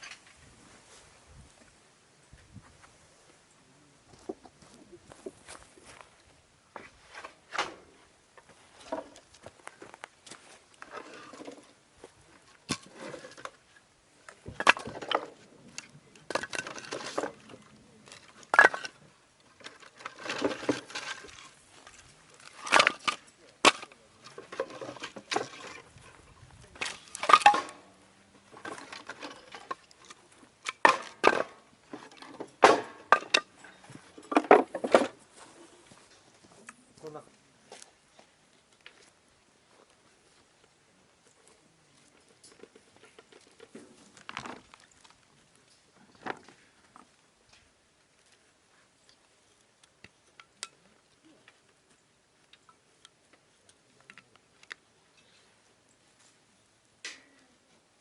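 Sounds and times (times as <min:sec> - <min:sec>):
things being handled: 0:12.4 - 0:36.7
clatter of wooden and metal gear: 0:14.5 - 0:25.9, 0:26.8 - 0:27.9, 0:28.5 - 0:35.2.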